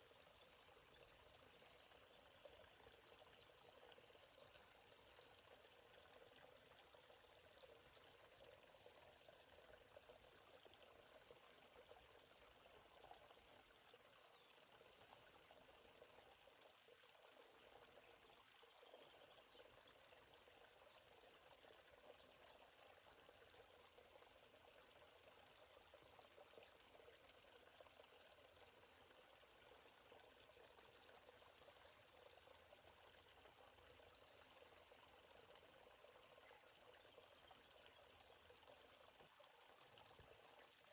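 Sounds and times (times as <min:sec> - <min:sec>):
faint stream flowing: 0:00.0 - 0:40.9
insect chorus buzzing: 0:00.0 - 0:40.9.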